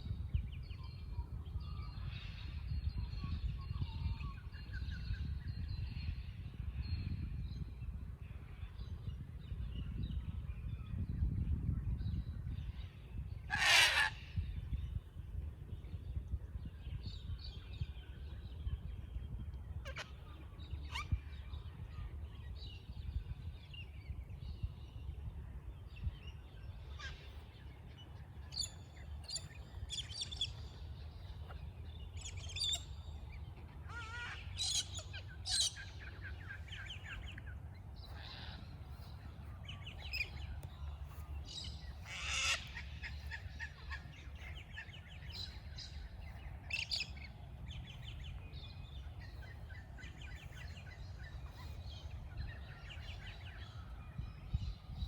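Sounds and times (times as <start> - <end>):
steady low rumble: 14.2 - 55.0
birds chirping and calling: 24.0 - 55.0.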